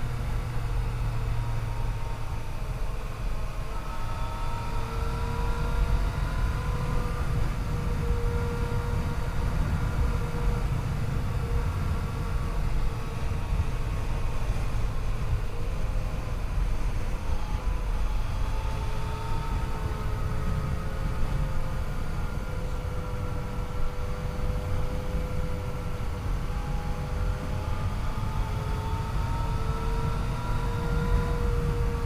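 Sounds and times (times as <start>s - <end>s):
motorcycle engine cruising: 0.0s - 32.0s
wind and road noise: 0.0s - 32.0s.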